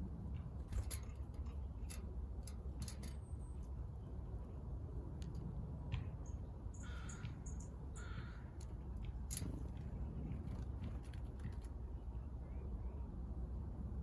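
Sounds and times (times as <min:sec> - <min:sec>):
crow cawing: 0:08.0 - 0:08.5.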